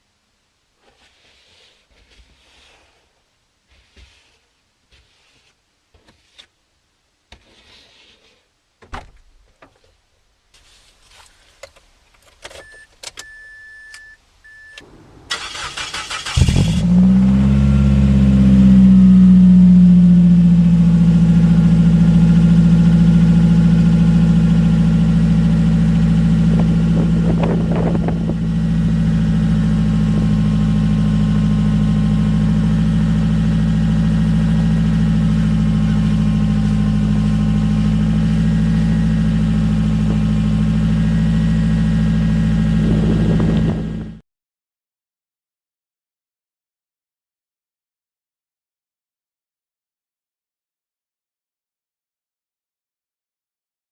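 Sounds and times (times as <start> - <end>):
car engine idling: 14.8 - 44.2.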